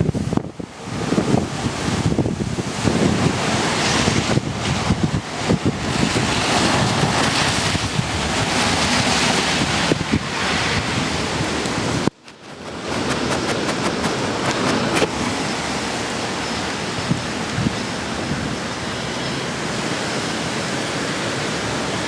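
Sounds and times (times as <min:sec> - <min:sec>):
strong wind buffeting microphone: 0:00.0 - 0:22.0
sharp ticks: 0:12.1 - 0:15.1.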